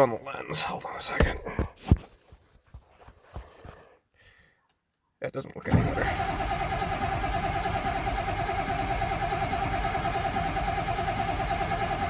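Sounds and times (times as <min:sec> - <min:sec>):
diesel engine cranking on starter: 0:05.7 - 0:12.0.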